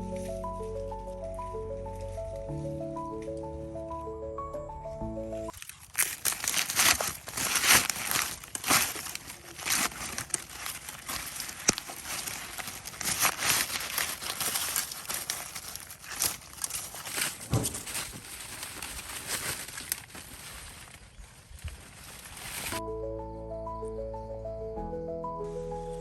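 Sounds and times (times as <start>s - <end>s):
dry rustling and crackling: 4.9s - 22.8s.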